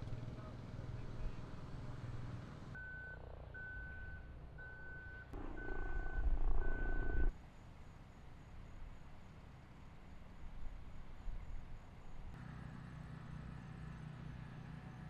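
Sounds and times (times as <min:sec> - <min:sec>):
engine running: 0:00.0 - 0:07.3, 0:12.3 - 0:15.0
vehicle reversing alarm beeping: 0:02.8 - 0:07.3.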